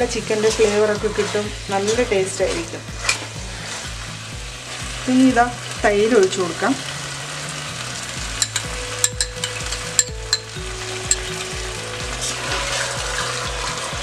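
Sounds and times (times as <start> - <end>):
food sizzling in a pot: 0.0 - 14.0
spoon clicking against pot: 8.4 - 10.5.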